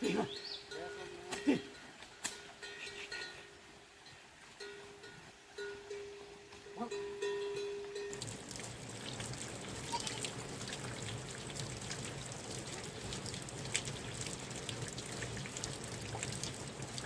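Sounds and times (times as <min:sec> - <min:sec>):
rain falling: 0:08.1 - 0:17.0
raindrops ticking: 0:08.1 - 0:17.0.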